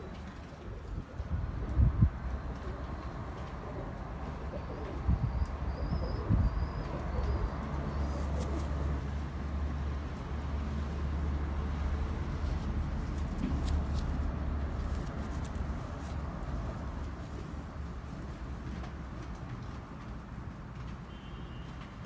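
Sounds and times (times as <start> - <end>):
pigeons cooing: 2.4 - 9.6.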